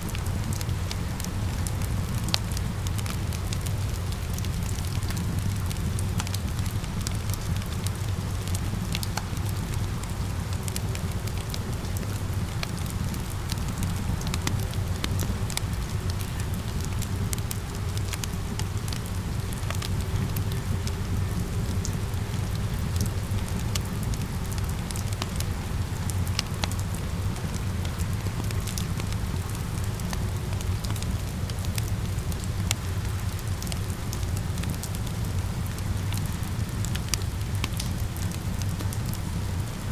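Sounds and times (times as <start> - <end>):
fire crackling and popping: 0.0 - 39.9
rain falling: 0.0 - 39.9.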